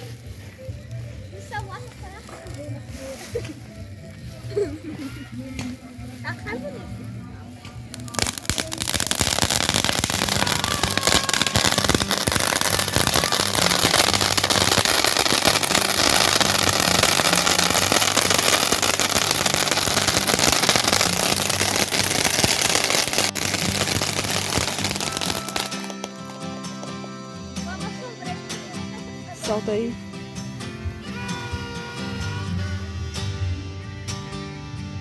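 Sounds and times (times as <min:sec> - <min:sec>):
firework crackling and hissing: 0:00.0 - 0:04.9, 0:05.7 - 0:29.7.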